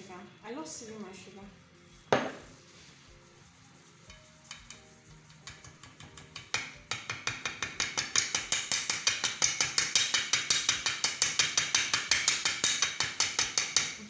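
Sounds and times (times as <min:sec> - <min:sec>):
sieve tapping: 0:02.1 - 0:02.6, 0:04.2 - 0:14.0.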